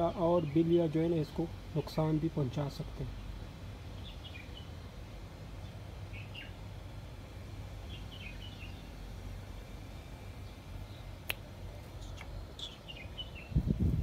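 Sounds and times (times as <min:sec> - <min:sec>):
birds chirping: 0:00.0 - 0:13.8.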